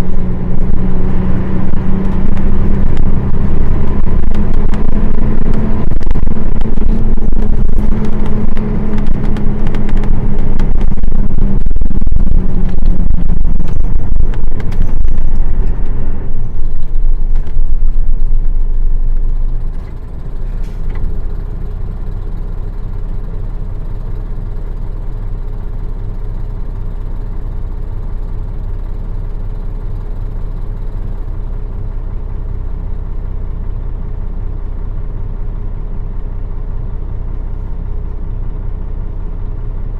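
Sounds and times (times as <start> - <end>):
rattles and clicks: 0.0 - 21.2
bus diesel engine running: 0.0 - 39.9
bus engine idling: 0.0 - 39.9.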